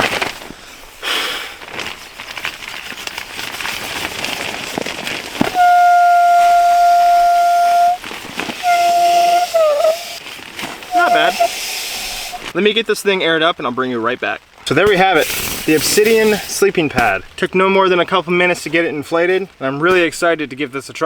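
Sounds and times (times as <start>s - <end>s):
rustling: 0.0s - 12.6s, 14.4s - 20.3s
air whistling through valve: 5.5s - 10.2s, 10.9s - 12.6s, 15.2s - 16.6s.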